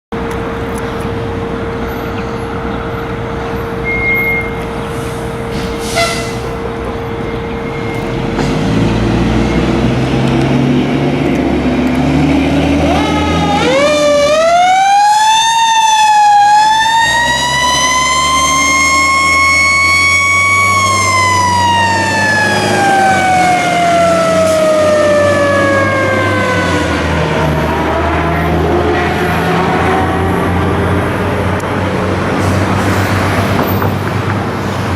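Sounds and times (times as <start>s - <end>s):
fire truck engine running: 0.1s - 34.9s
mechanical siren wailing: 12.8s - 31.0s.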